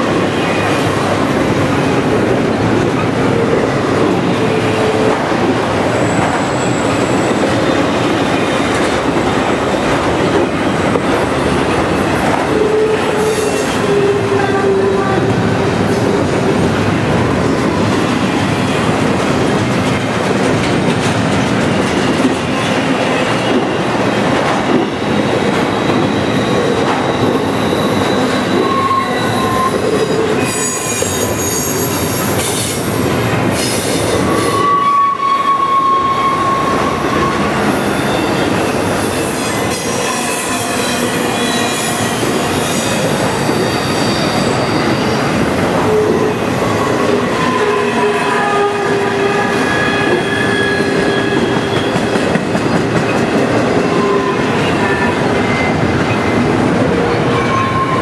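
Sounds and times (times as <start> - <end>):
freight cars rolling on rails: 0.0 - 58.0
wheel flange squeal: 26.0 - 32.0.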